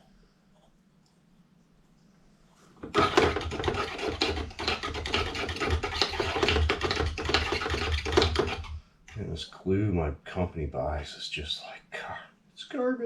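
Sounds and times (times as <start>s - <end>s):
rapid scratchy scraping: 2.8s - 8.7s.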